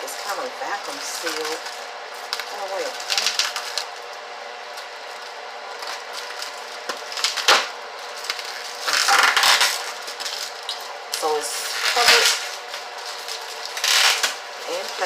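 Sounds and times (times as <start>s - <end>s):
plastic crinkling: 0.0s - 15.0s
steady hum: 0.0s - 15.0s.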